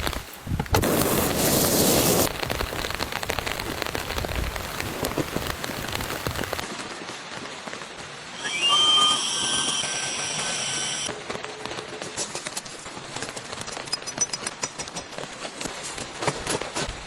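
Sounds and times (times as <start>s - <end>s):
rain falling on a surface: 0.0s - 8.4s, 11.1s - 17.0s.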